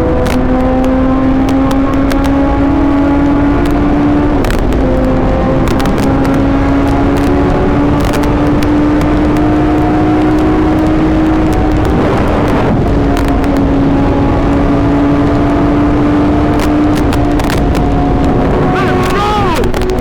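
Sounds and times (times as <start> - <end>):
motorcycle engine running: 0.3 - 20.0.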